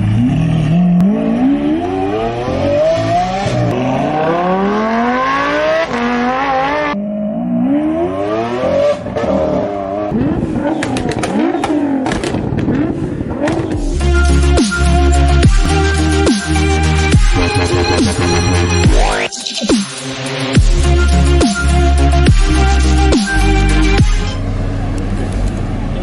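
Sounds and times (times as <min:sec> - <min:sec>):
supercar engine accelerating: 0:00.0 - 0:13.8
exhaust pops and crackles: 0:10.2 - 0:13.9.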